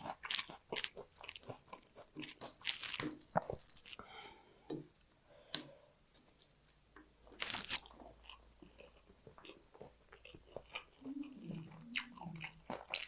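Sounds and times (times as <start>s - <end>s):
crunching bite: 0.0s - 4.0s, 6.3s - 10.9s
person chewing food: 0.0s - 13.0s.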